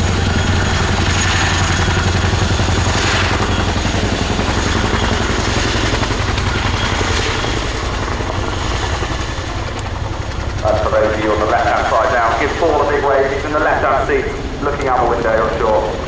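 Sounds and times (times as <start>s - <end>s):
helicopter rotors throbbing: 0.0s - 16.0s
turbine rush: 0.0s - 16.0s.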